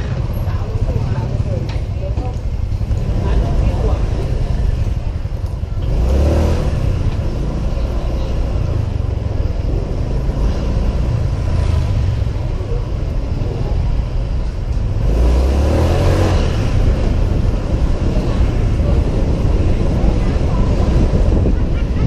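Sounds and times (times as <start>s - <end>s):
city traffic: 0.0s - 22.0s
scooter engine running: 0.0s - 22.0s
wind rumbling on camera: 0.0s - 22.0s.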